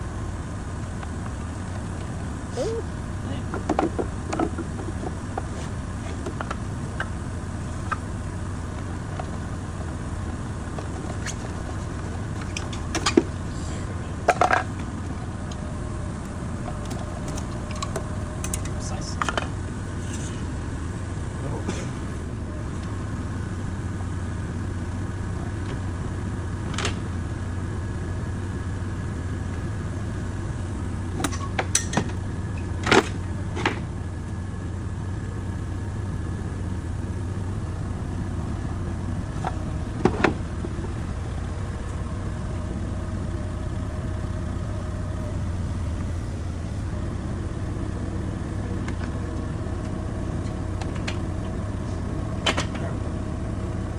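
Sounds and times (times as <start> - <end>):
low mechanical hum: 0.0 - 53.9
sharp clanks and knocks: 3.4 - 7.2, 31.2 - 33.9, 49.8 - 51.6, 52.4 - 53.0.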